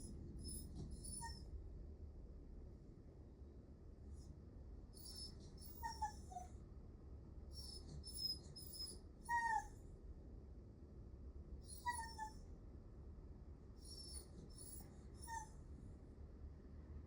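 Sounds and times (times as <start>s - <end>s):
dog whining: 0.4s - 1.5s, 5.0s - 6.6s, 7.5s - 9.8s, 11.6s - 12.4s, 13.8s - 15.6s.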